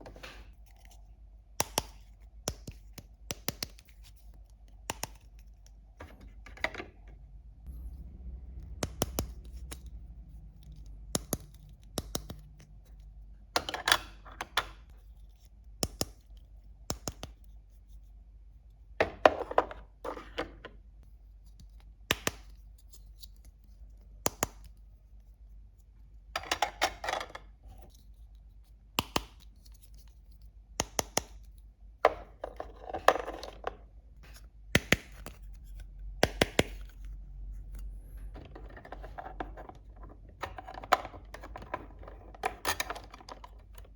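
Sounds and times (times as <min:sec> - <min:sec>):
rustling and scraping: 0:37.0 - 0:43.9.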